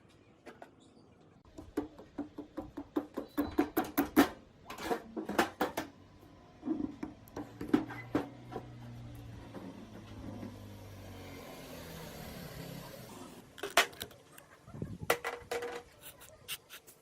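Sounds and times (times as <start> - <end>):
sharp knocks on metal: 1.6 - 5.9.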